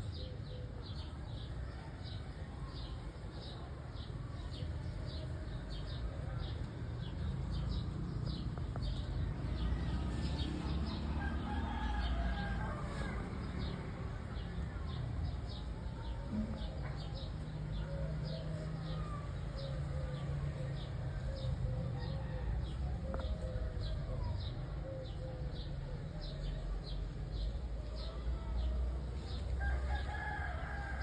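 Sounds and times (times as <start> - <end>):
rooster crowing: 11.2 - 13.3, 29.6 - 31.0.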